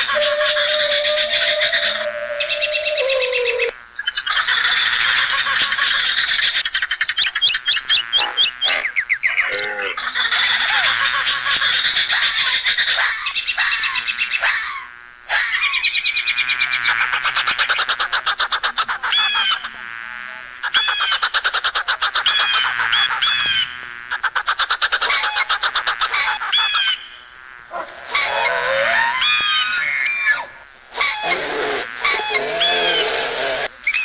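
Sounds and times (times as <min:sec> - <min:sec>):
falling high chirps: 0:00.0 - 0:03.7
animal calls sliding in pitch: 0:00.0 - 0:03.8, 0:27.7 - 0:34.0
rapid buzzing trills: 0:00.0 - 0:34.0.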